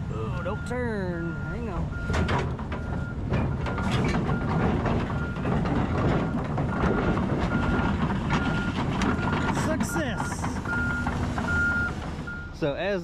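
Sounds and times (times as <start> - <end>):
diesel engine under load: 0.0 - 13.0
travel alarm beeping: 0.4 - 2.4, 8.4 - 12.6
steel tracks clanking: 1.8 - 12.5.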